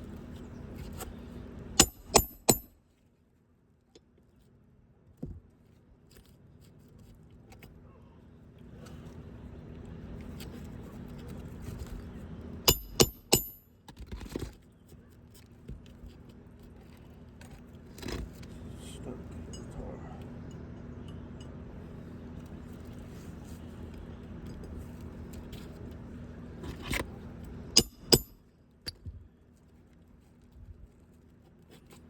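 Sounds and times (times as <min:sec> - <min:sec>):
metal tool striking with ring: 0:01.8 - 0:02.8, 0:12.7 - 0:13.7, 0:27.8 - 0:28.4.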